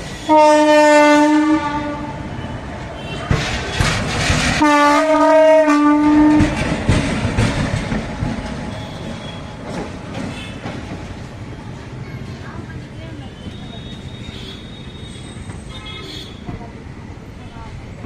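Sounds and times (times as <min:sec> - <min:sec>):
train rumble with clicking wheels: 0:00.0 - 0:18.0
locomotive horn blast: 0:00.2 - 0:02.2, 0:04.6 - 0:06.6.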